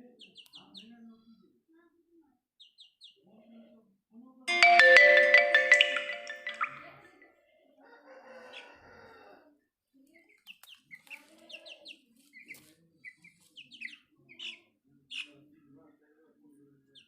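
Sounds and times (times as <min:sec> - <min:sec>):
music note: 0:04.5 - 0:06.9.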